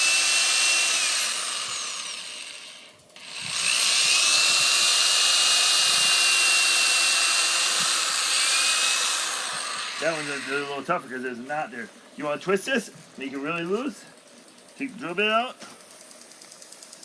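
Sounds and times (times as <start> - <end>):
power drill boring into wood: 0.0 - 10.8.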